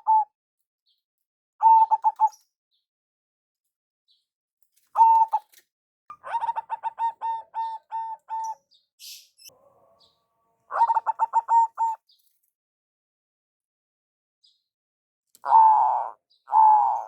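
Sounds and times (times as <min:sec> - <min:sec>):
dove cooing: 0:00.0 - 0:00.2, 0:01.6 - 0:02.4, 0:05.0 - 0:05.5, 0:06.1 - 0:08.6, 0:09.5 - 0:12.0, 0:15.4 - 0:17.0.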